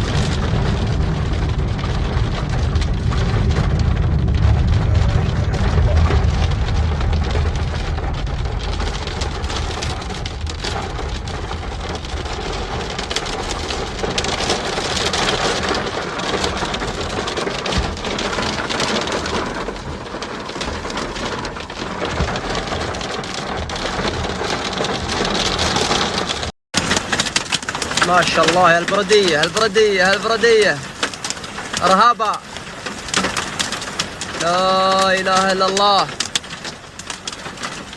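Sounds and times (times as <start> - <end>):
low rumble: 0.0 - 28.9
rain and hail on hard surfaces: 0.0 - 37.9.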